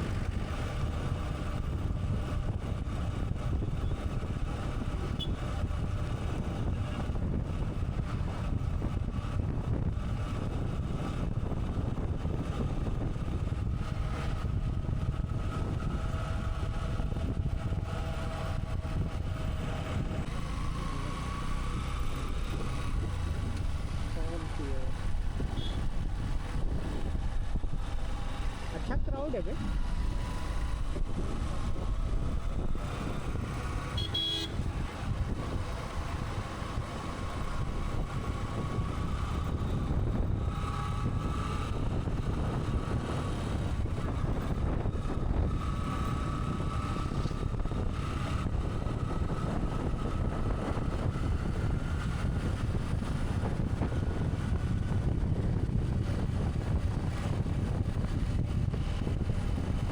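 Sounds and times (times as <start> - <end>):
motorcycle engine: 0.0 - 59.9
traffic: 0.0 - 59.9
horn toot: 25.5 - 25.9, 33.9 - 34.7.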